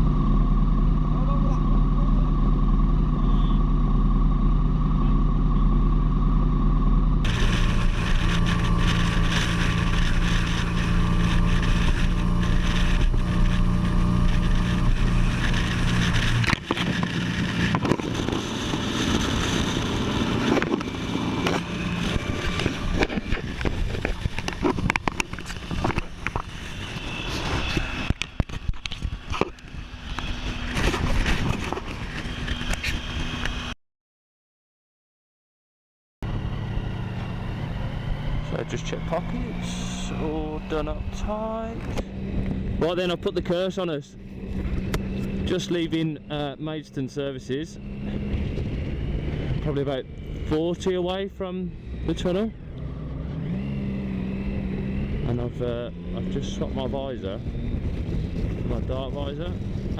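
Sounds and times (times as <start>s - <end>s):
motorcycle engine running: 0.0s - 33.7s, 36.2s - 59.9s
wind rush on microphone: 7.2s - 33.7s, 47.8s - 50.5s, 56.0s - 59.9s.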